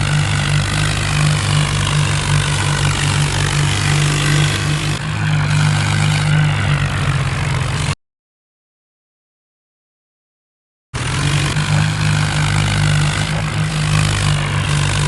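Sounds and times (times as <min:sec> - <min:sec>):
tractor diesel engine running: 0:00.0 - 0:08.0, 0:11.0 - 0:15.0.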